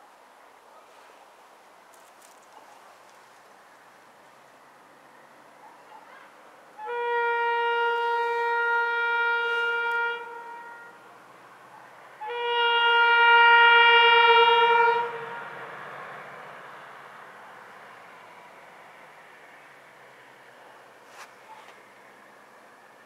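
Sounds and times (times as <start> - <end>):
locomotive horn blasts: 6.8 - 11.1, 12.2 - 15.6.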